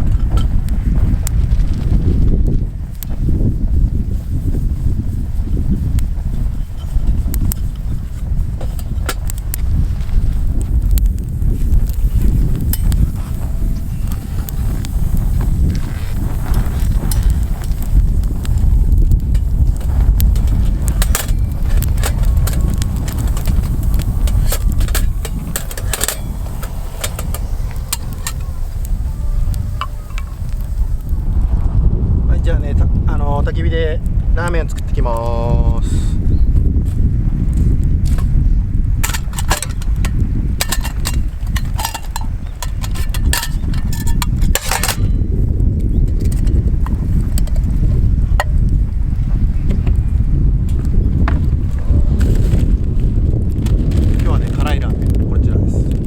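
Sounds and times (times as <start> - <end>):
wind on microphone: 0.0 - 56.0
sharp clicks and knocks: 10.6 - 28.5.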